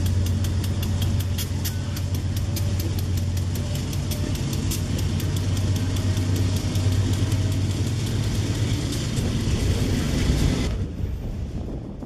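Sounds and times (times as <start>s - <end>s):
wheel clicks: 0.0s - 9.6s
train wheels rumbling on rail: 0.0s - 12.0s.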